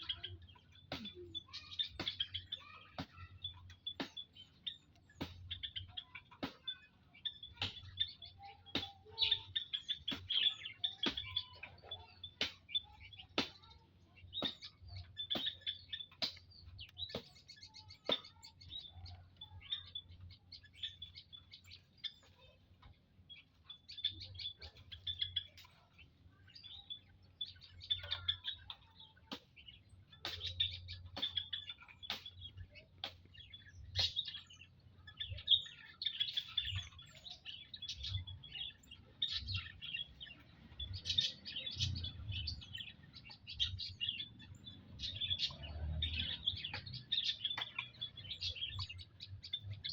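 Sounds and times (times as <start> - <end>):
songbirds chirping: 0.0 - 49.9.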